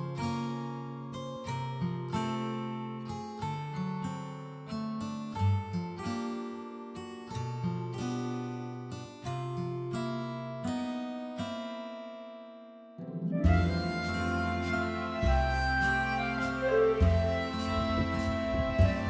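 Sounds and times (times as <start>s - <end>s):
soft instrumental music: 13.0s - 19.0s.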